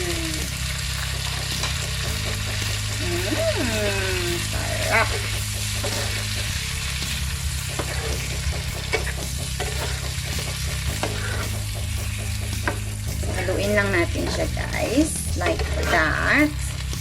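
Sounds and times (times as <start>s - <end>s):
shrimp sizzling in a frying pan: 0.0s - 17.0s.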